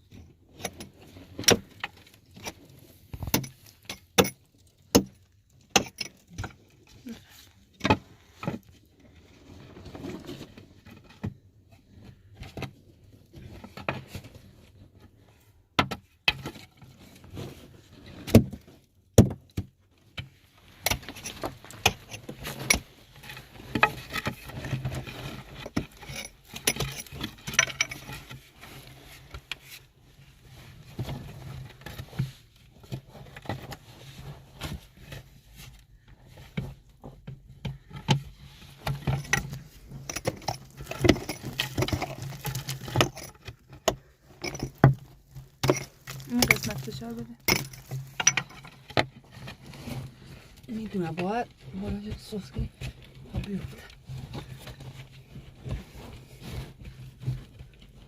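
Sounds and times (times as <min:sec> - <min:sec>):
objects clinking and rattling: 0:20.9 - 0:28.4, 0:38.8 - 0:49.5.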